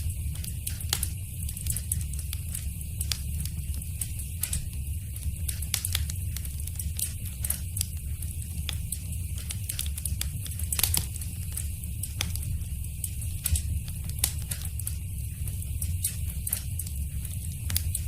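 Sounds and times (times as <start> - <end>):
fire crackling in a fireplace: 0.0 - 18.0.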